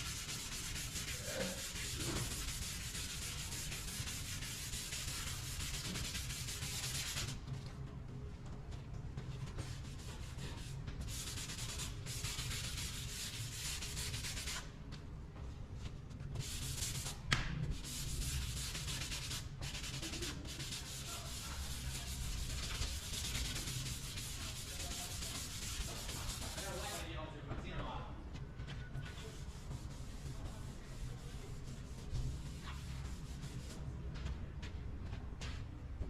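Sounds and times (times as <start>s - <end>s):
sanding gritty rasping: 17.8s - 27.0s.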